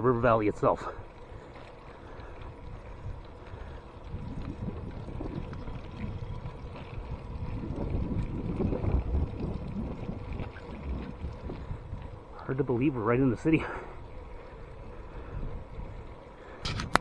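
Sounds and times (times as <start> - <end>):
bicycle road noise: 0.0 - 17.0
wind rumbling on microphone: 0.0 - 17.0.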